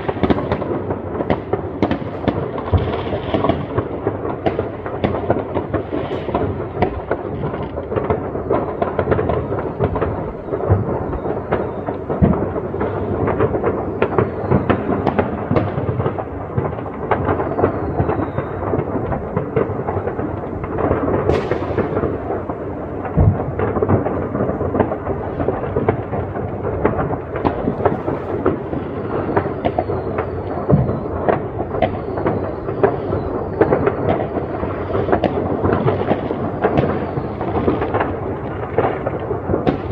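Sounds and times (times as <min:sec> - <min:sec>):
firework whistles: 0:00.0 - 0:03.7, 0:08.3 - 0:16.2, 0:17.0 - 0:20.2, 0:20.9 - 0:23.7, 0:27.4 - 0:39.2
fireworks bangs and crackling: 0:00.0 - 0:39.9
sharp crack: 0:00.0 - 0:39.9.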